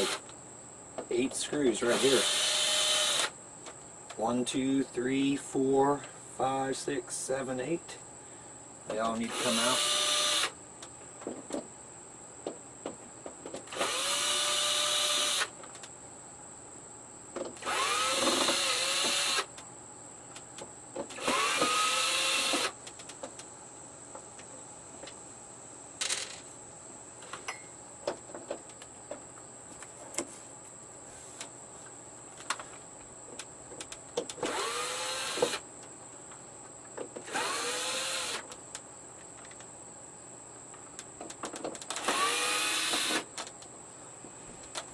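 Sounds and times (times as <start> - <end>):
screw gun motor spinning: 1.9 - 3.3, 13.7 - 15.5, 17.6 - 19.5, 21.2 - 22.8, 34.5 - 35.6, 37.3 - 38.5, 41.9 - 43.3.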